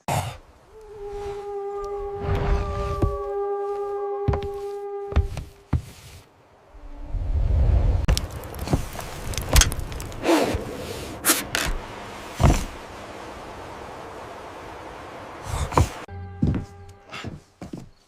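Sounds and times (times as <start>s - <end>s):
low rumble: 6.6s - 16.2s
sharp irregular cracks and knocks: 8.1s - 10.2s.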